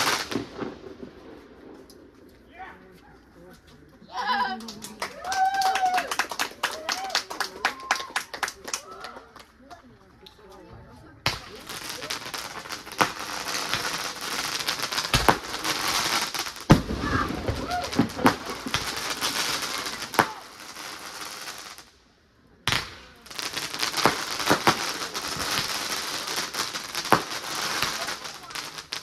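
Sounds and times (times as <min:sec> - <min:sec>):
fireworks crackling and banging: 0:00.0 - 0:29.0
low firework boom: 0:16.7 - 0:19.0.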